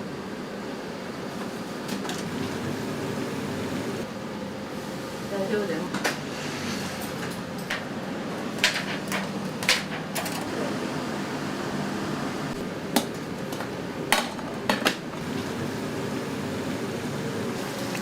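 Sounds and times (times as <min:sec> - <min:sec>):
kitchen ventilation hum: 0:00.0 - 0:18.0
utensils and dishes clacking: 0:06.8 - 0:07.9.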